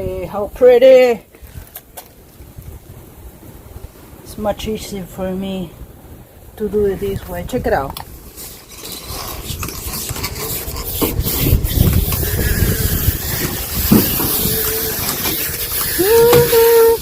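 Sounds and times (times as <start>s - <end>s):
hose dragging and rubbing: 8.1s - 17.0s
electric hose reel winding: 8.4s - 17.0s.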